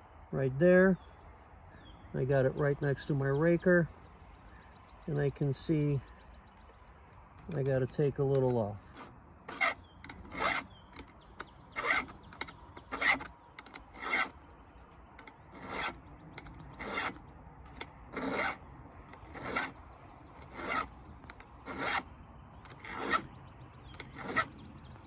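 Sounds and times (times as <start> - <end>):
hand file rasping on chain: 8.3 - 14.4, 15.2 - 19.8, 20.4 - 23.4, 24.0 - 24.6.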